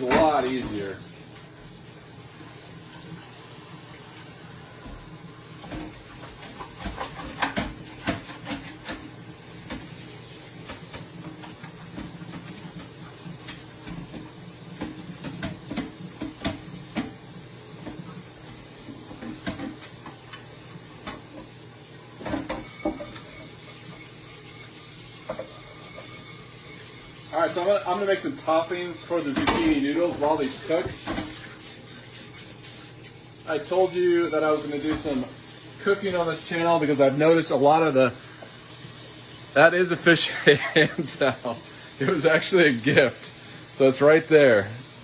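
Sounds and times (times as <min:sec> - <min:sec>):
tap running into sink: 0:00.0 - 0:01.8, 0:04.8 - 0:21.6, 0:22.2 - 0:24.6, 0:25.2 - 0:27.0, 0:29.2 - 0:31.7.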